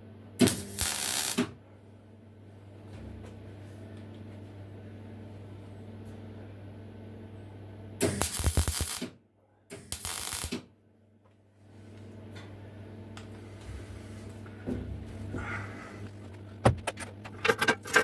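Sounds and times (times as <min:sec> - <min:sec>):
steady low hum: 0:00.0 - 0:18.0
welder crackling: 0:00.4 - 0:01.6, 0:08.0 - 0:09.1, 0:09.8 - 0:10.7.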